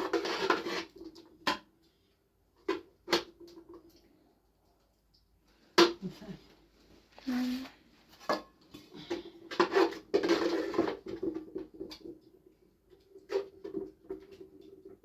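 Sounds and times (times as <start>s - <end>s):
knocks and scrapes of handled objects: 0.0s - 1.7s, 7.4s - 15.0s.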